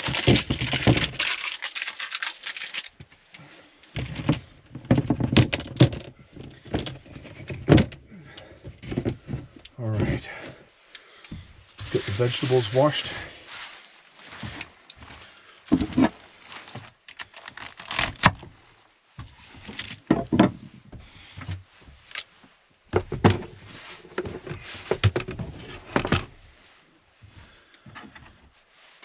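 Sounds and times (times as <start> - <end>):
scraping and rustling: 11.7 - 18.2, 21.6 - 26.9.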